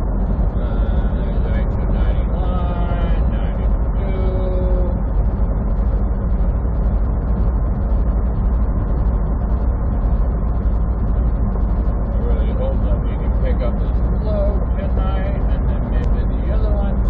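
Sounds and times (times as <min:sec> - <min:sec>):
truck engine and road noise: 0:00.0 - 0:17.0.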